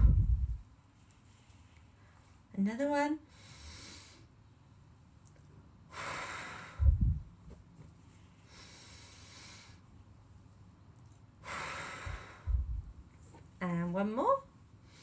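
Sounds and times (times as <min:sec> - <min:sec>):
blow buffeting microphone: 0:00.0 - 0:00.6, 0:06.8 - 0:07.4, 0:12.0 - 0:13.0
person breathing deeply: 0:00.0 - 0:00.6, 0:05.9 - 0:07.3, 0:11.4 - 0:13.0.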